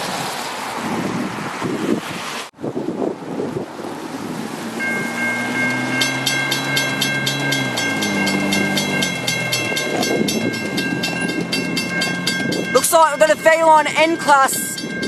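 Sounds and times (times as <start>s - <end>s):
locomotive horn chord: 4.8s - 14.2s
level crossing bell ringing: 4.8s - 15.0s.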